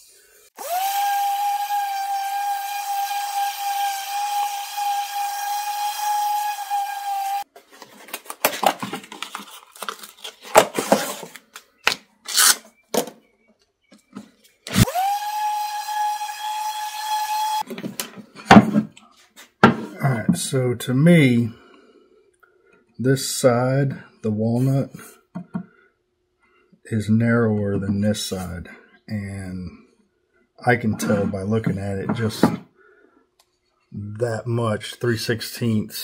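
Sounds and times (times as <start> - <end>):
orbital sander whine: 0.6 - 7.4.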